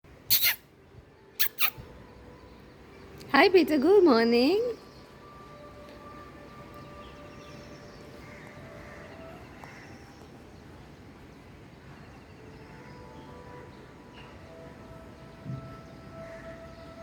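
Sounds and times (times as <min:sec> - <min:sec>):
birds chirping and calling: 0:00.3 - 0:00.6, 0:01.4 - 0:01.8.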